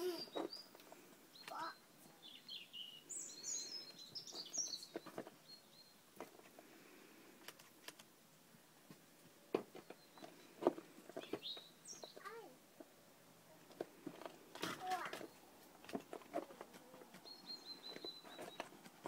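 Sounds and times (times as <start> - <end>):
birds twittering: 0.0 - 6.7, 9.7 - 12.4, 16.9 - 19.0.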